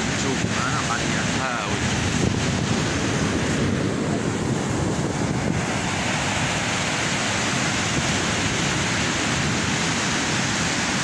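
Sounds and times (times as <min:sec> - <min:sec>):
rough sea surf breaking: 0:00.0 - 0:11.0
wind buffeting microphone: 0:00.0 - 0:11.0.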